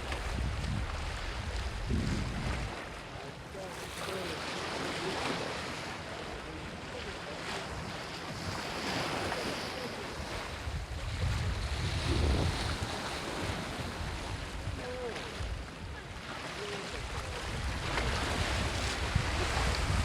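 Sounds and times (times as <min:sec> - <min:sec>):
wind buffeting microphone: 0:00.0 - 0:02.8, 0:10.2 - 0:16.1, 0:17.0 - 0:20.0
sea waves washing ashore: 0:00.0 - 0:20.0.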